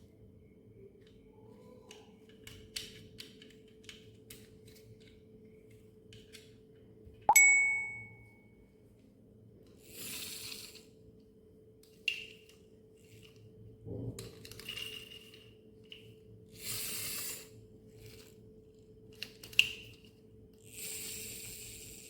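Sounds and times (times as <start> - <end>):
sharp clicks of small parts: 1.9 - 5.2, 19.1 - 20.1
faint steady hum: 7.3 - 9.8.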